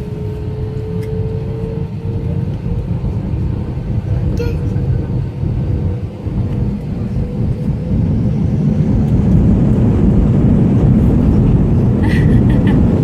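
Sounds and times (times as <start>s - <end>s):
plane cabin engine rumble: 0.0s - 13.0s.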